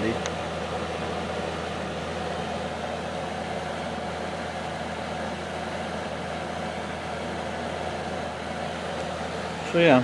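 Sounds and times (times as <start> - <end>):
compressor low hum: 0.0 - 10.0
fan air noise: 0.0 - 10.0.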